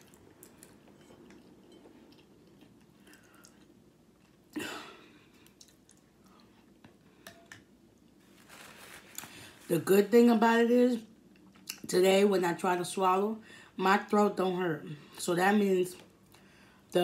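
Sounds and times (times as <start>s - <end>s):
chewing soft food: 0.0s - 4.6s, 5.2s - 6.9s.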